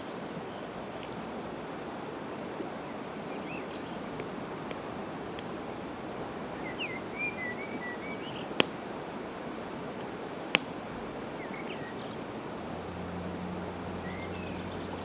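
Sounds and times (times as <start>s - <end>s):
rushing river: 0.0s - 15.0s
campfire crackling: 0.8s - 15.0s
small bird chirping: 6.5s - 8.8s, 11.3s - 12.6s, 13.8s - 15.0s.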